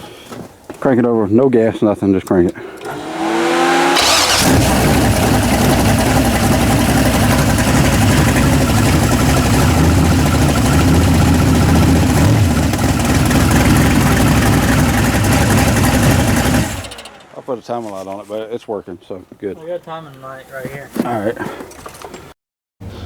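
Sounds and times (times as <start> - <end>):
engine starter cranking: 2.6 - 17.6
engine running: 2.8 - 17.8.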